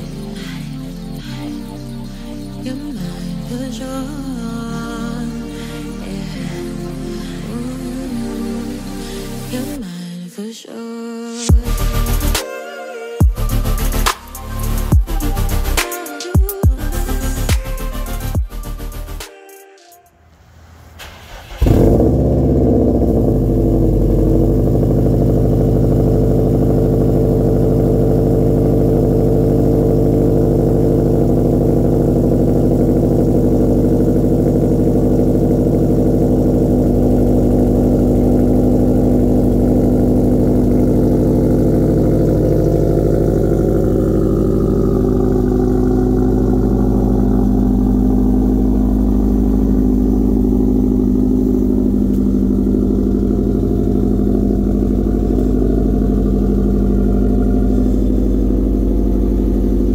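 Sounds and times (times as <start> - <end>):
car engine idling: 11.5 - 12.4, 13.2 - 19.3, 20.2 - 59.9.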